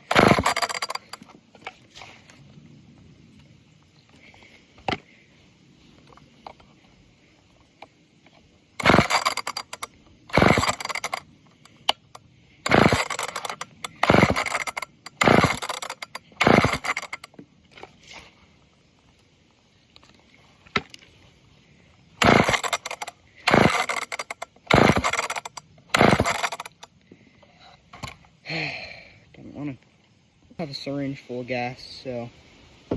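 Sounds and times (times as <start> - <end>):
chainsaw recoil starter pulls: 0.0 - 2.4, 8.8 - 18.0, 22.2 - 26.9, 27.9 - 28.3.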